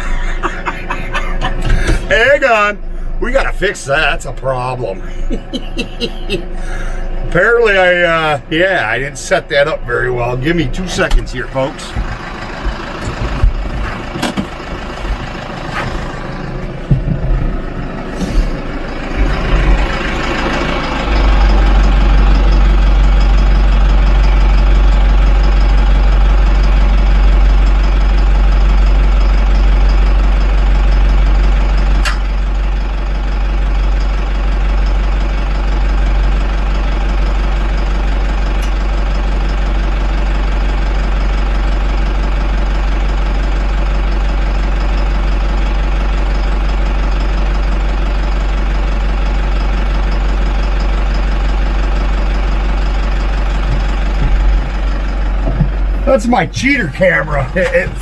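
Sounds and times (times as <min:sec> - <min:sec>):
tractor engine idling: 0:00.0 - 0:58.0
handling knocks: 0:16.7 - 0:19.9.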